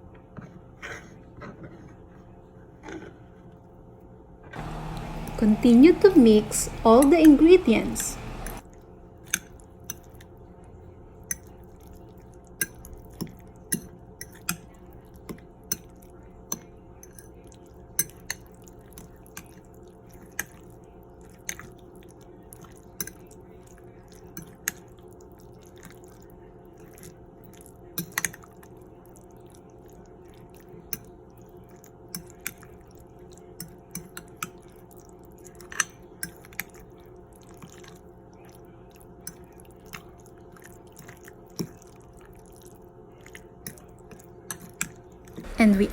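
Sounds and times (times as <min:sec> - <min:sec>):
utensil stirring mixture in bowl: 0:04.6 - 0:08.6, 0:11.3 - 0:45.9
faint steady hum: 0:04.6 - 0:08.7, 0:45.1 - 0:45.9.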